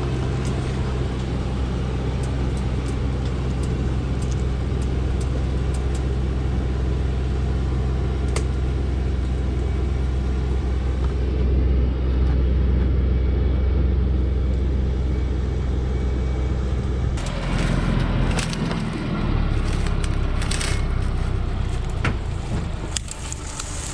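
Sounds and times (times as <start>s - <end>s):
truck engine droning: 0.0s - 23.9s.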